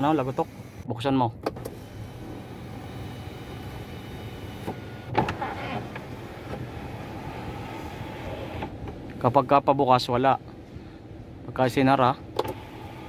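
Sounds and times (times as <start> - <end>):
sunroof motor whining: 0.0 - 0.9, 1.6 - 9.4, 12.2 - 13.0.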